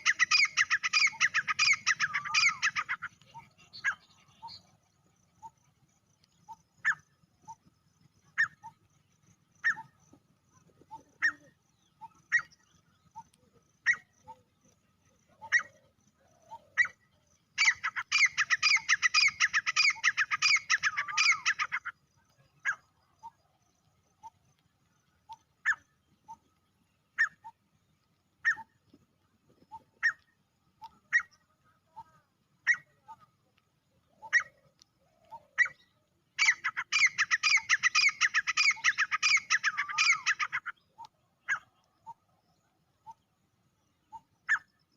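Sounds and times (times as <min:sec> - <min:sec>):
bird calling sharp notes: 0:00.0 - 0:04.6, 0:17.6 - 0:21.9, 0:36.4 - 0:40.7.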